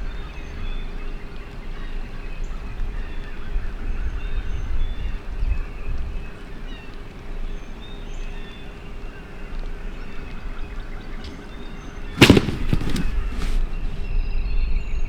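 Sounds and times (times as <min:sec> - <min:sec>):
small birds chirping: 0:00.1 - 0:14.0
sharp cracks: 0:11.2 - 0:14.0.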